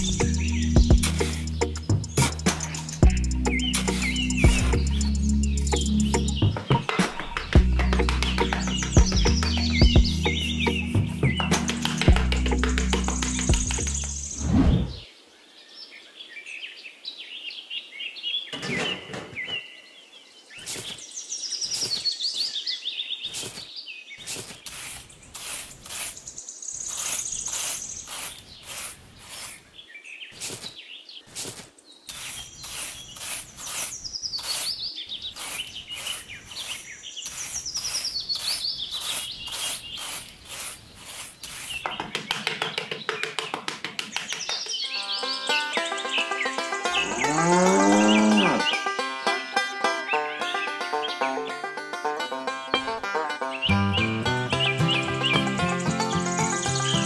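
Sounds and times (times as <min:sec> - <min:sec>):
small birds chirping: 0:00.0 - 0:51.6, 0:52.3 - 0:57.0
metal trowel scraping sand: 0:24.2 - 0:29.7, 0:31.3 - 0:41.9.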